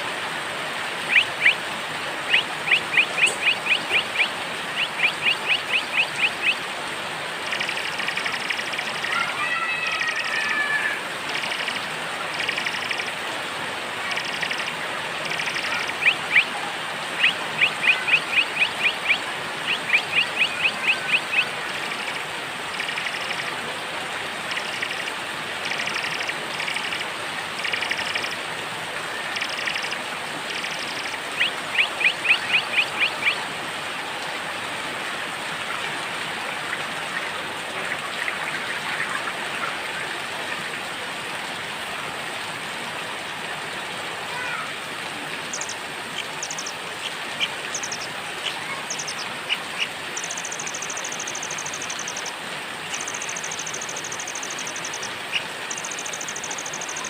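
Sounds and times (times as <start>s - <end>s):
steady rain: 0.0s - 57.0s
small songbirds chirping: 1.1s - 1.6s, 2.3s - 6.6s, 14.2s - 16.5s, 17.2s - 23.4s, 29.3s - 33.4s, 45.4s - 52.3s, 52.9s - 57.0s.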